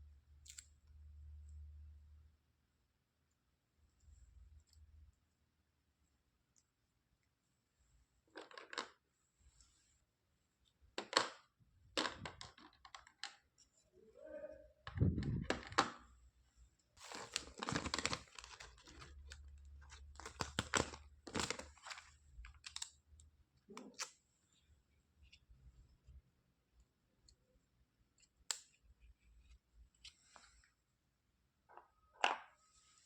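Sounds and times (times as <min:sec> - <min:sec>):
plastic toy pieces clattering: 0:08.4 - 0:09.0, 0:12.0 - 0:13.4
rustling: 0:17.0 - 0:22.8.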